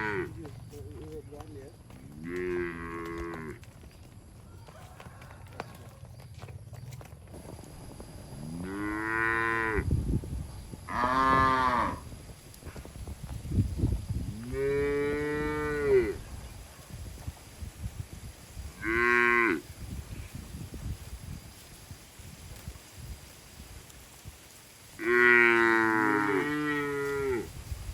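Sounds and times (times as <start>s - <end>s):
cattle mooing: 0.0s - 0.4s, 2.1s - 3.6s, 8.4s - 9.9s.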